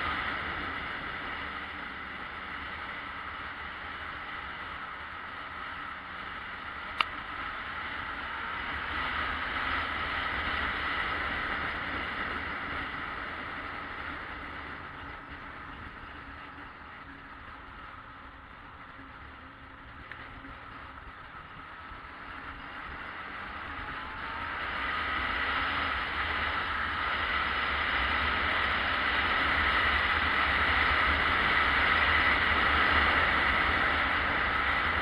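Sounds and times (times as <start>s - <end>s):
motorcycle engine running: 0.0s - 35.0s
wind and road noise: 0.0s - 35.0s
sharp click: 6.9s - 7.2s.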